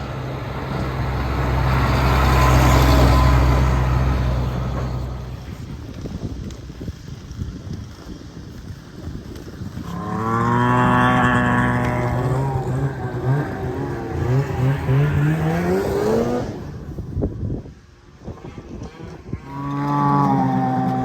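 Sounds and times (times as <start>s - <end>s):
engine running and revving: 0.0s - 7.3s, 9.8s - 21.0s.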